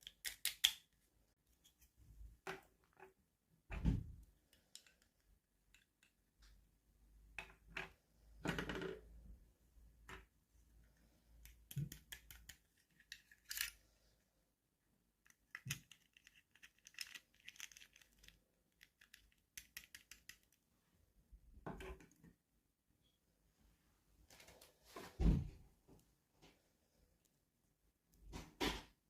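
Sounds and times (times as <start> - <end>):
toy packaging being opened: 15.2 - 20.5.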